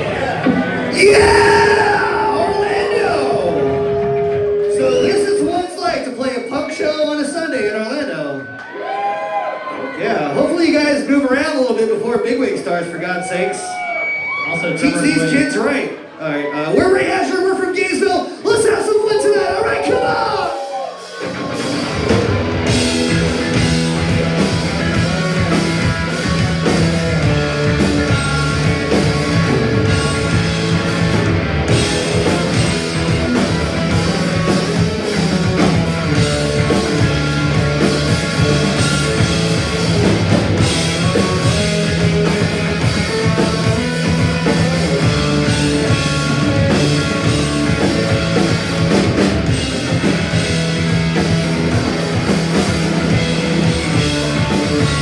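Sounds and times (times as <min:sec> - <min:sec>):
punk rock band playing: 0:00.0 - 0:07.0, 0:19.8 - 0:55.0.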